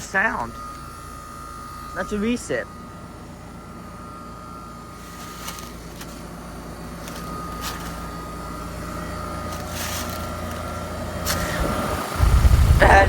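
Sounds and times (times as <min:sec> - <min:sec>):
heat pump humming: 0:00.0 - 0:13.0.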